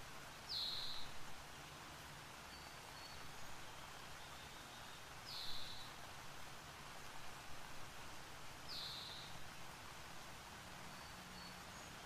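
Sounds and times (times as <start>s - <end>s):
waterfall hiss: 0.0s - 12.0s.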